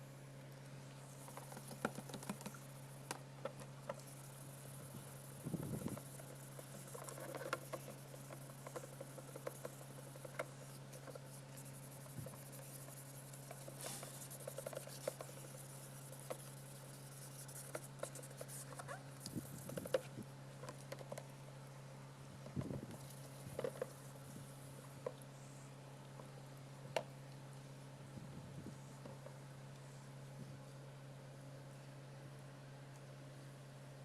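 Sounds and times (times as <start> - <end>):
steady low hum: 0.0 - 34.0
scratching and clicking on plastic: 1.2 - 21.3, 22.4 - 24.0.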